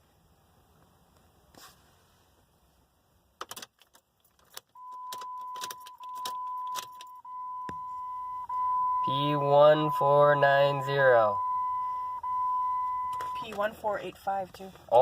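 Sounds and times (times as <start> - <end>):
car keys jangling and clicking: 3.4 - 7.4
high dashboard chime: 4.8 - 13.8.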